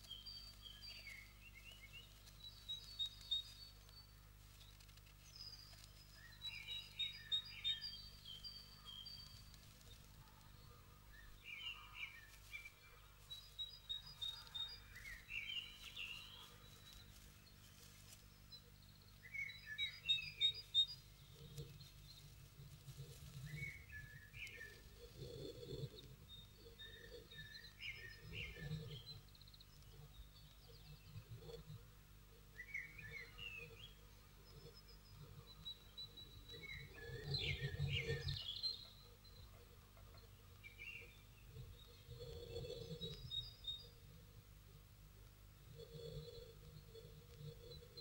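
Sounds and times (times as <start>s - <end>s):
soft rustles: 0.0s - 7.0s, 8.1s - 11.3s, 12.0s - 18.7s, 20.6s - 26.3s
birds chirping muffled: 0.0s - 48.0s.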